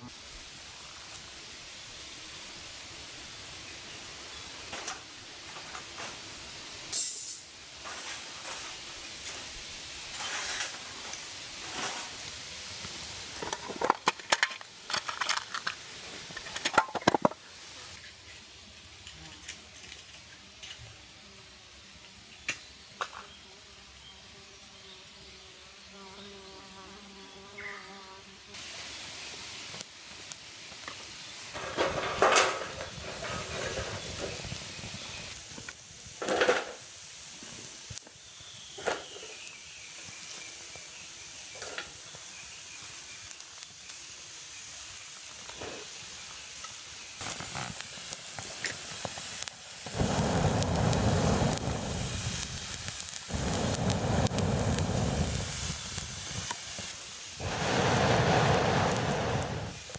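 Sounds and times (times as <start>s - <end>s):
campfire crackling and popping: 10.7s - 17.4s, 29.7s - 41.0s, 41.6s - 59.9s.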